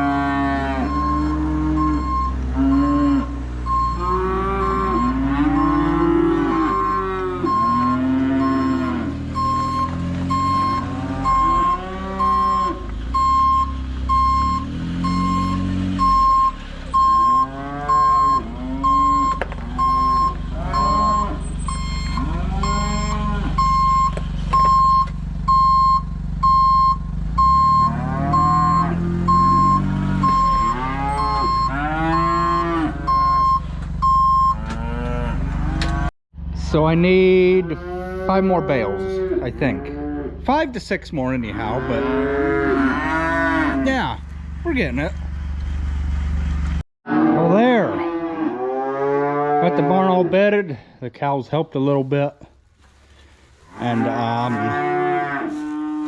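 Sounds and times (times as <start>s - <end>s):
cows mooing: 0.0s - 25.0s, 27.4s - 36.1s, 37.1s - 40.6s, 41.2s - 44.2s, 47.1s - 50.5s, 53.7s - 56.0s
engine running: 0.0s - 43.2s, 43.8s - 46.8s
reversing alarm beeping: 0.6s - 34.7s.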